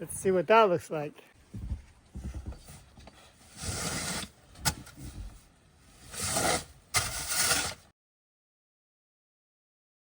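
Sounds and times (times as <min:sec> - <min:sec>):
shovel scraping snow on wood: 0:03.4 - 0:04.4, 0:05.9 - 0:07.9.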